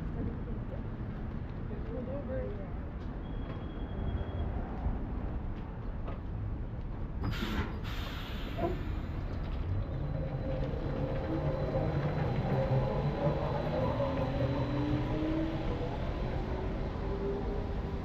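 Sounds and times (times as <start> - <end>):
short hiss: 7.3 - 9.0.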